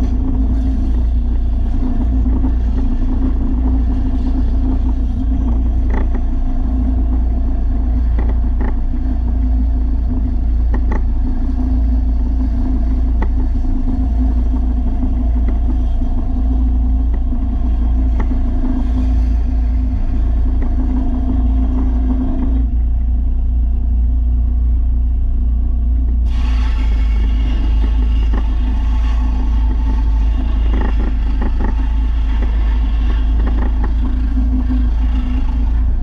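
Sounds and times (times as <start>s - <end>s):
machine motor humming: 26.0s - 36.0s.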